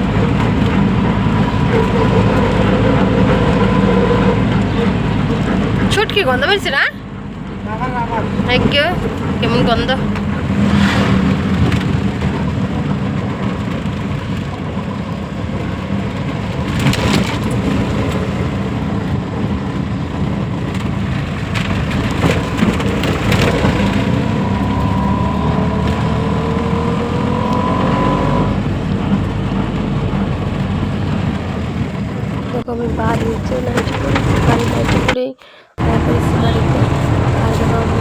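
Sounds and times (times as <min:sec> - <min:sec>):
vehicle engine rumble: 0:00.0 - 0:38.0
knocks and rattles: 0:08.3 - 0:35.2
rising whine: 0:22.4 - 0:31.1.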